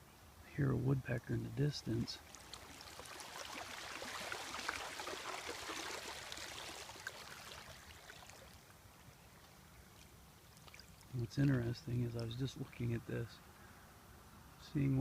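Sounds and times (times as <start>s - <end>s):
wave washing onto shore: 2.2s - 8.6s.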